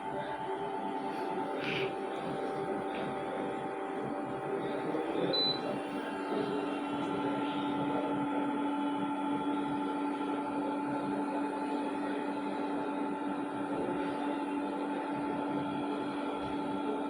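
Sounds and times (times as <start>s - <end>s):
air conditioner humming: 0.0s - 12.6s.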